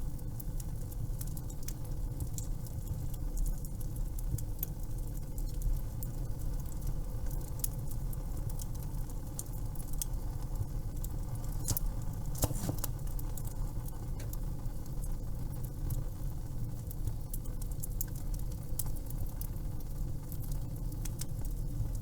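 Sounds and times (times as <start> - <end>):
low fire rumble: 0.0 - 22.0
wood fire crackling: 0.0 - 22.0.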